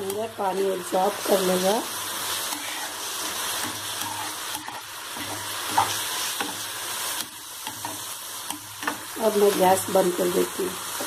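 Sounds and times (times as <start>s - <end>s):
food sizzling in a frying pan: 0.0s - 11.0s
spatula scraping a pan: 2.2s - 9.2s.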